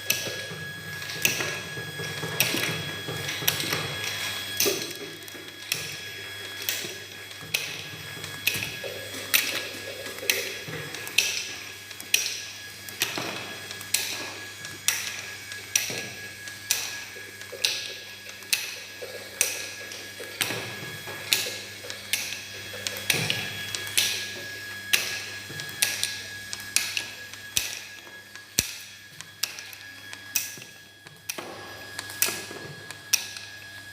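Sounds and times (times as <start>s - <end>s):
motor hum: 0.0s - 33.9s
machine clicking: 2.2s - 19.7s.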